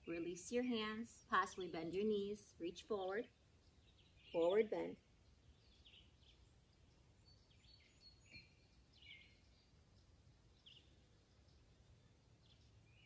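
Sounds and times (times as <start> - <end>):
faint bird chirps: 3.1 - 13.0.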